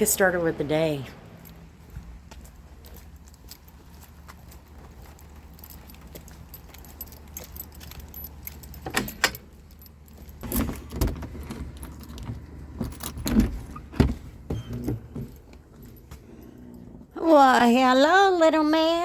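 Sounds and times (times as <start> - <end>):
small metal pieces jingling: 2.9 - 10.9.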